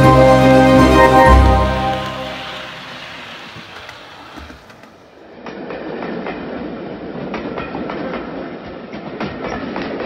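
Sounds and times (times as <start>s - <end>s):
music: 0.0s - 3.2s
train wheels clickety-clack: 2.5s - 10.0s.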